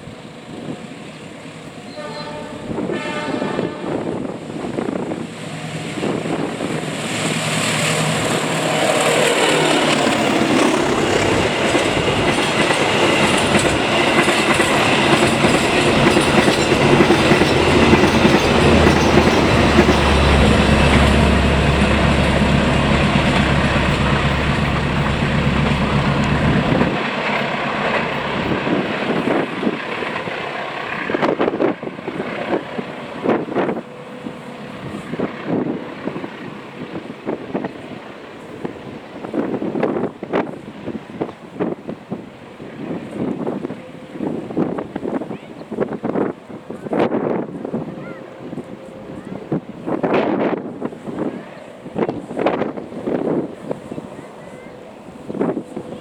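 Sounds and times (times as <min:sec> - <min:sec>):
train wheels clattering on rails: 0:05.9 - 0:42.4.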